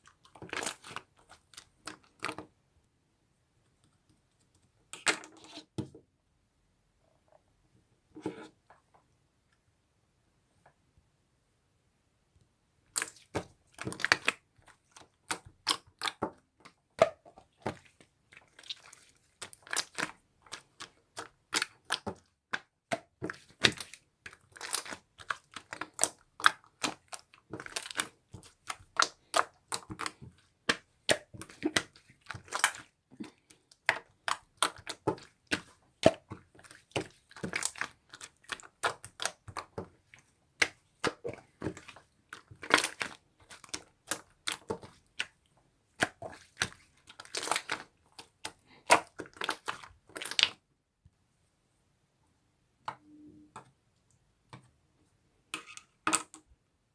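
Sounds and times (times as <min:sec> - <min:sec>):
slime squishing and popping: 0:17.0 - 0:39.8, 0:40.6 - 0:45.4, 0:46.0 - 0:50.6.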